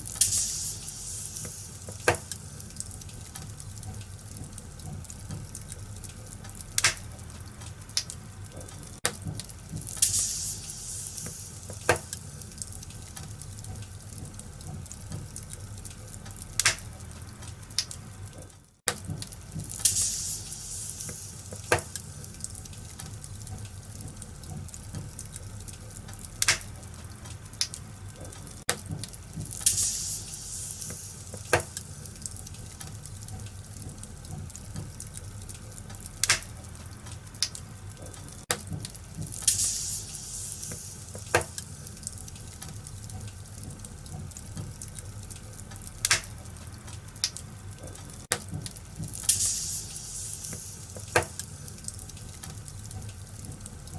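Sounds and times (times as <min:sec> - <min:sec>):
sharp fire pops: 0:00.0 - 0:04.7, 0:05.3 - 0:14.5, 0:16.3 - 0:18.0, 0:18.9 - 0:24.3, 0:24.9 - 0:34.1, 0:36.0 - 0:37.7, 0:38.5 - 0:43.0, 0:45.8 - 0:47.5, 0:48.2 - 0:53.8
low rumble of flames: 0:00.0 - 0:53.9
wood fire crackling: 0:00.0 - 0:53.9
hissing flares: 0:49.1 - 0:51.8.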